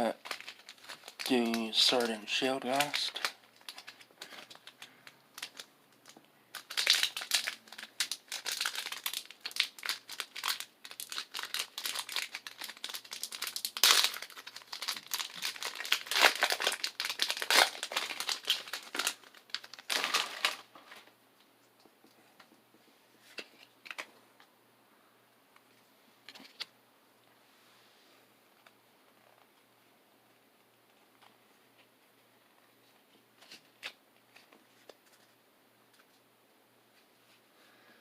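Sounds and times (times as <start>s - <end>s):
wrapper crinkling: 0.0s - 21.1s.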